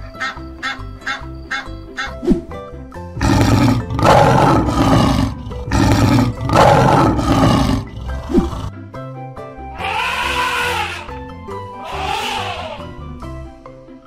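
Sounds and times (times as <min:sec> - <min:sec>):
light background music: 0:00.0 - 0:14.0
lion roaring: 0:03.2 - 0:08.7.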